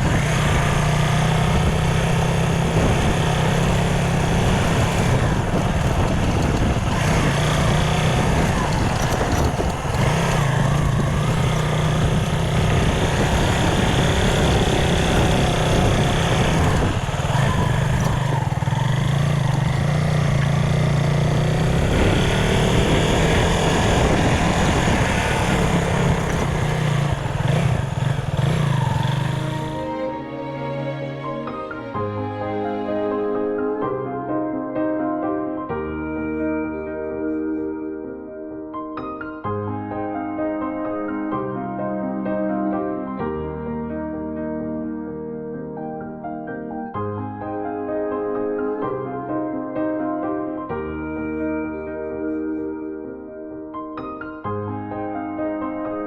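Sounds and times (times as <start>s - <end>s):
motorcycle engine running: 0.0s - 33.7s.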